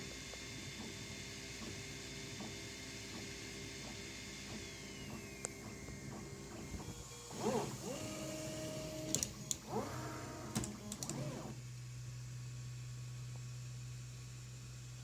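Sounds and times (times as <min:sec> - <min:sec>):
stepper motors whining: 0:04.7 - 0:11.6.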